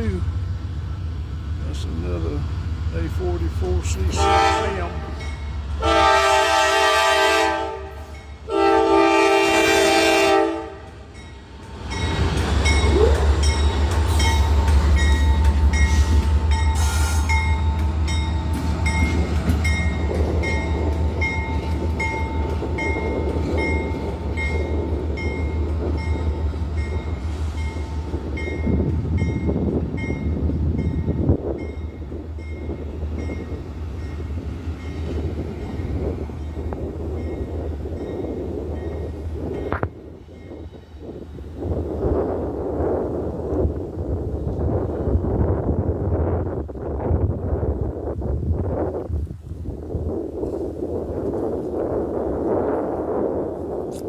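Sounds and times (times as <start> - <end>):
locomotive horn: 4.1 - 11.0.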